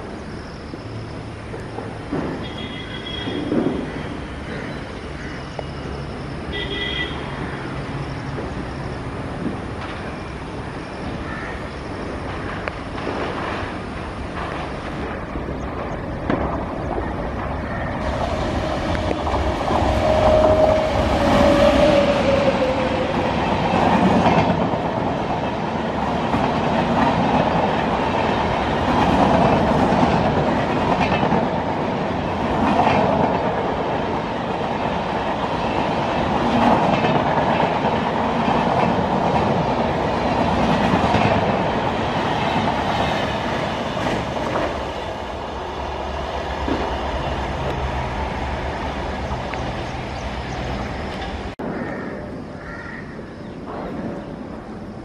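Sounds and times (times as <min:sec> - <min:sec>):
train rumble: 0:00.0 - 0:55.0
wheels clacking over rail joints: 0:12.3 - 0:51.6.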